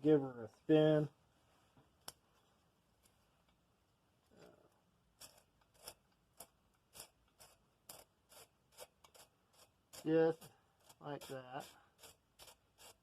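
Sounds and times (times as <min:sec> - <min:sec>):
faint rasping strokes: 0:04.2 - 0:13.0.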